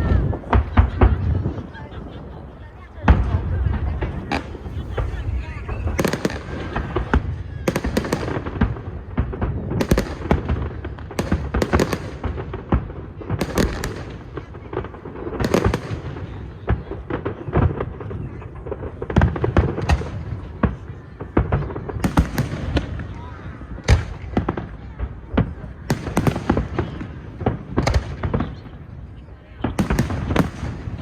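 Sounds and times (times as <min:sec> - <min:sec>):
fireworks bursting: 0:00.0 - 0:31.0
low rumble: 0:03.2 - 0:07.4.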